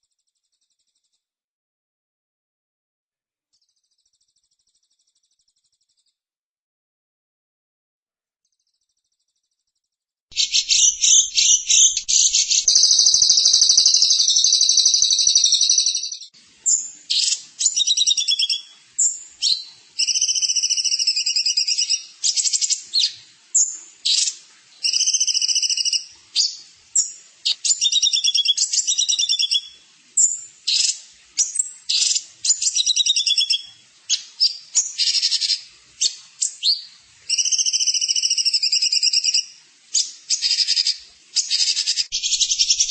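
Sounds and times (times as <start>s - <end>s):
songbird singing: 10.3s - 42.9s.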